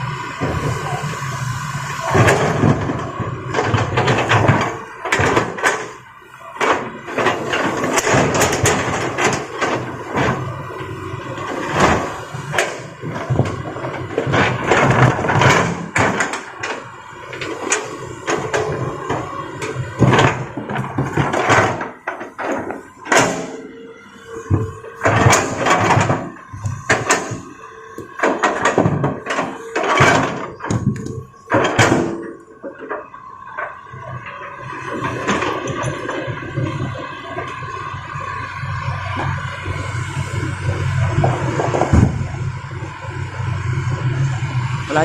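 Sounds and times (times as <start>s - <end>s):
excavator diesel engine: 0.0s - 45.0s
rocks banging on steel: 6.6s - 10.6s, 11.4s - 23.7s, 24.4s - 33.1s.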